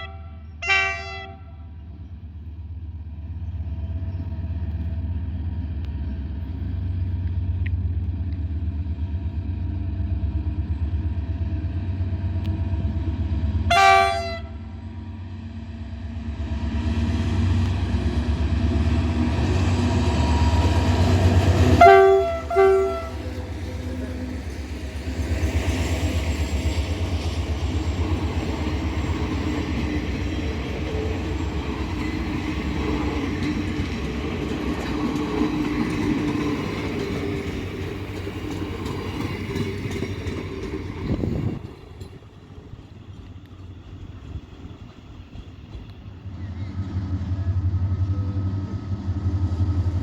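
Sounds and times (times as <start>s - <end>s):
train horn blasts: 0.0s - 1.8s, 13.6s - 14.8s, 20.3s - 24.2s, 46.5s - 49.7s
diesel locomotive engine drone: 0.0s - 50.0s
train clattering along rails: 0.0s - 50.0s.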